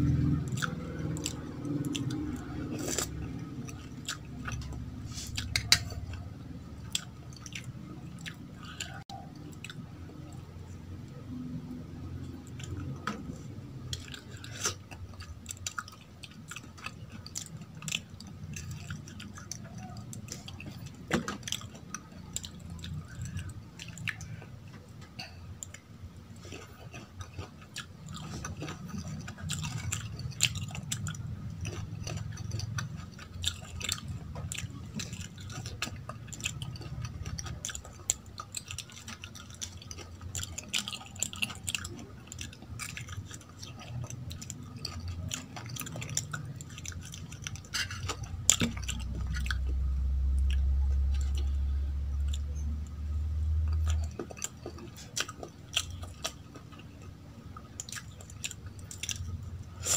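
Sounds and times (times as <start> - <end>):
wet chewing sounds: 0.0 - 59.9
mouth clicks and smacks: 0.7 - 6.2.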